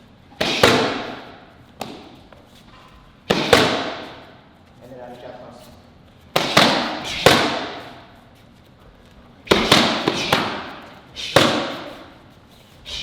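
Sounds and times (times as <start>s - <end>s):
punches and kicks smacking paddles: 0.4s - 2.1s, 3.3s - 4.2s, 6.3s - 7.9s, 9.5s - 12.0s.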